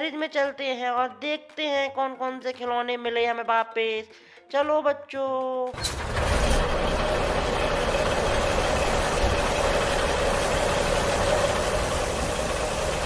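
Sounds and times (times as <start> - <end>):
truck engine rumbling: 5.7 - 13.0.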